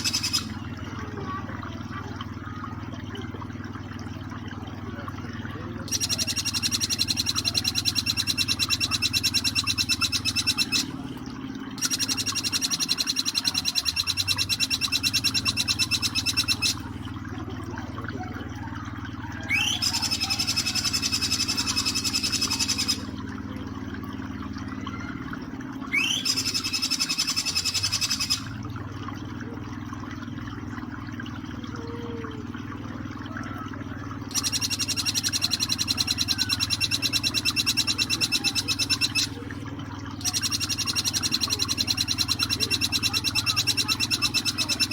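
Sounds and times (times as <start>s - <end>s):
bird rattling trills: 0.0s - 0.7s, 5.9s - 11.0s, 11.8s - 17.0s, 19.5s - 23.2s, 25.9s - 28.7s, 34.3s - 39.5s, 40.1s - 44.9s
flowing water: 0.0s - 44.9s.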